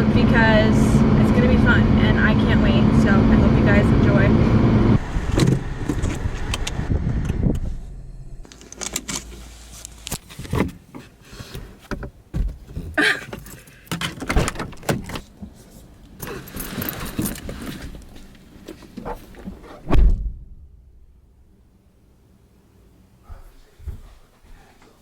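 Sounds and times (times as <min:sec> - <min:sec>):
low car rumble: 0:00.0 - 0:09.4
clicks and knocks of handling in car: 0:10.1 - 0:15.6.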